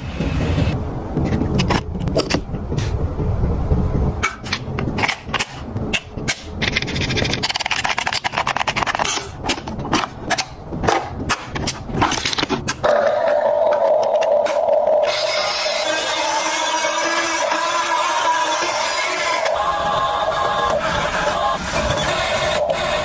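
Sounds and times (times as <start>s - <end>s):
fast rattle: 6.5s - 9.7s
toy excavator rumble: 11.6s - 23.0s.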